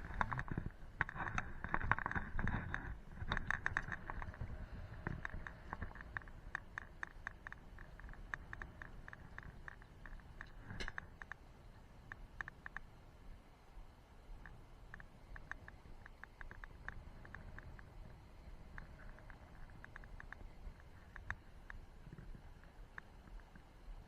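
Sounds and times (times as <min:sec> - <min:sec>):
wind gusts rumbling: 0:00.0 - 0:11.9
small clicks and scrapes: 0:00.0 - 0:13.0, 0:14.4 - 0:24.0.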